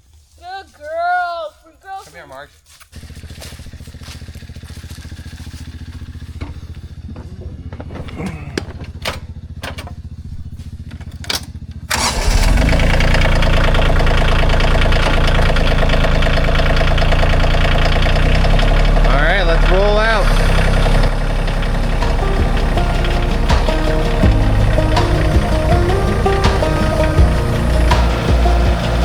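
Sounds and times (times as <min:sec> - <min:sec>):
vehicle engine idling and revving: 0:02.9 - 0:29.0
knocks and clicks: 0:21.5 - 0:29.0.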